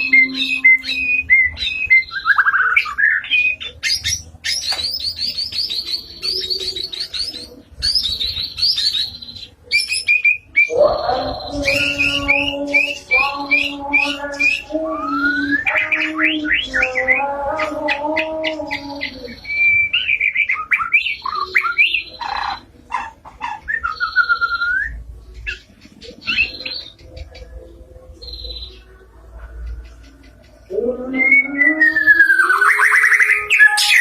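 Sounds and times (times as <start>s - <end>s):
bird singing whistled phrases: 0.0s - 17.2s, 19.0s - 22.2s, 23.7s - 25.6s, 31.1s - 34.0s.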